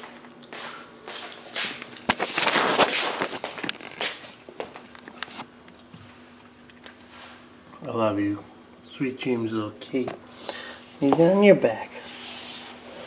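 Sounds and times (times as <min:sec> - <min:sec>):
rustling and scraping: 0:01.2 - 0:05.5, 0:10.9 - 0:13.0.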